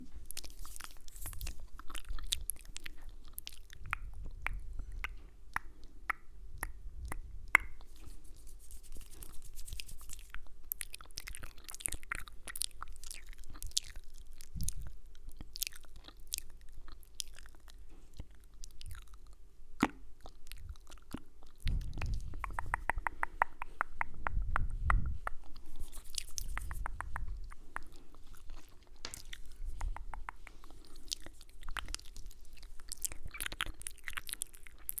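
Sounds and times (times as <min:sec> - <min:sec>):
wet mouth clicks and smacks: 0:00.3 - 0:35.0
low rumbles: 0:21.6 - 0:23.2.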